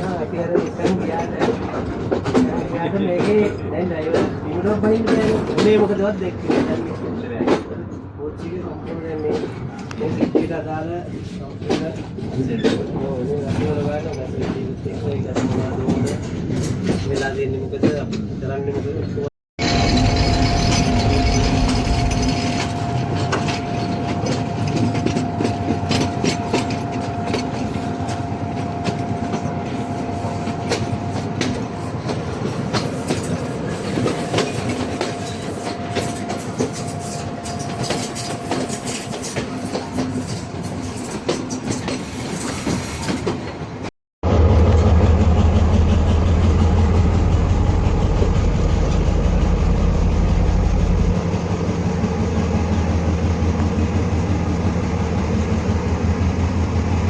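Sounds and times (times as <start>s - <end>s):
deep engine drone: 19.6s - 32.6s, 44.2s - 57.0s
train wheels clicking over rails: 19.8s - 43.8s.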